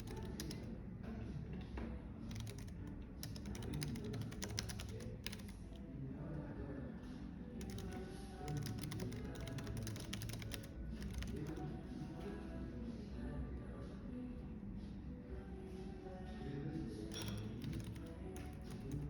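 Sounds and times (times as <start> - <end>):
typing on computer keyboard: 0.0 - 0.7, 2.3 - 5.7, 7.6 - 11.7, 17.1 - 19.0.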